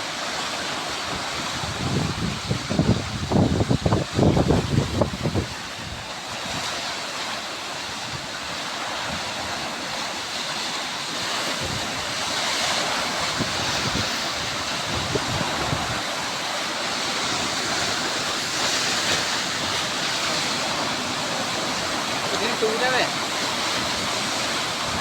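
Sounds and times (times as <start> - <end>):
surf hissing on shore: 0.0 - 25.0
wind buffeting microphone: 1.1 - 6.9, 11.3 - 25.0.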